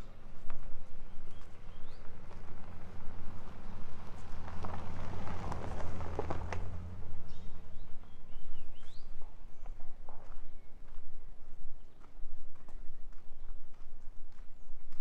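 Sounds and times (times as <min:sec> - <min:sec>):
birds chirping: 0:00.0 - 0:03.4, 0:06.4 - 0:13.9
footsteps on forest trail: 0:00.0 - 0:15.0.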